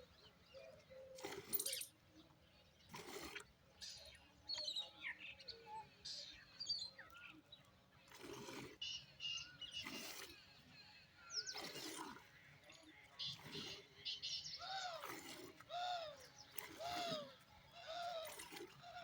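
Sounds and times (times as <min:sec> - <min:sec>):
small birds chirping: 0:11.2 - 0:12.1, 0:12.7 - 0:18.2.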